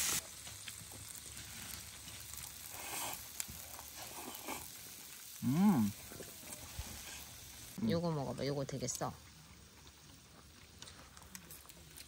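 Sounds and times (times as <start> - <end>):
food sizzling in a pan: 0.0 - 9.2
person humming: 5.4 - 6.0.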